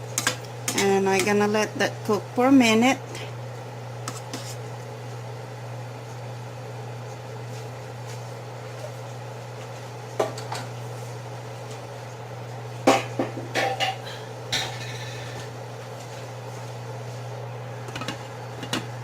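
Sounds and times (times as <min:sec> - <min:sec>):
steady low hum: 0:12.9 - 0:16.6
utensils clinking on pot: 0:13.6 - 0:15.5.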